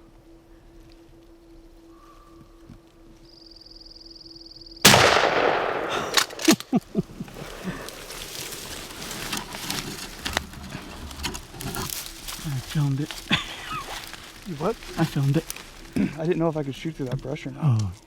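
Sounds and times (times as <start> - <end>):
shotgun blast: 4.8 - 6.6
short sharp noises: 4.9 - 6.7.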